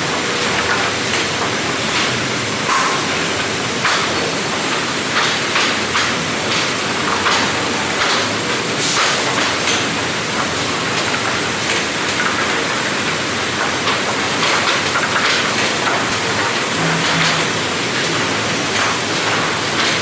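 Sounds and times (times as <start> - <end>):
machinery loud hiss: 0.0 - 12.1.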